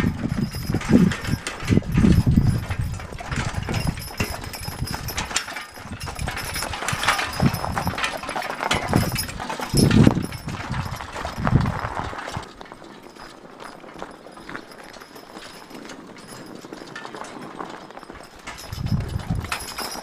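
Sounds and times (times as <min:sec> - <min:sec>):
horse hooves clopping: 0:00.0 - 0:20.0
knocks and rattles: 0:00.0 - 0:20.0.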